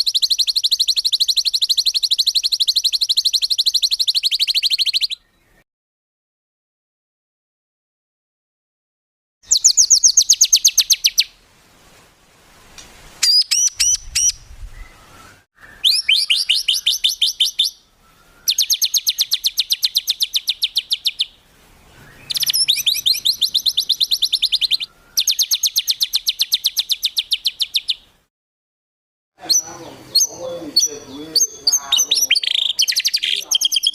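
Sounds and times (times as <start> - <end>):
songbird singing sharp high notes: 0.0 - 5.3, 9.5 - 11.3, 13.2 - 28.1, 29.4 - 33.9.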